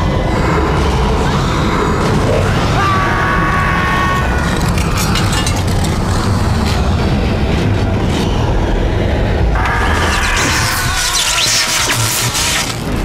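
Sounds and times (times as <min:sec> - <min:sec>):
sharp crackles: 0:09.9 - 0:13.0.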